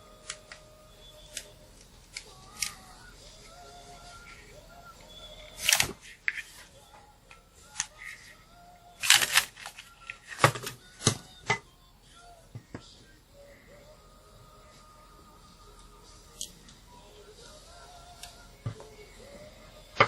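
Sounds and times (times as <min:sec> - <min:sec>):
plastic fan parts clicking: 0:01.3 - 0:02.9, 0:09.0 - 0:11.6.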